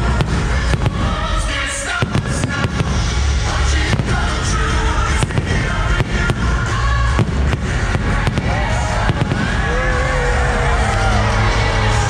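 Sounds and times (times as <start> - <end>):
fireworks bursting: 0.0 - 12.0
music: 0.0 - 12.0.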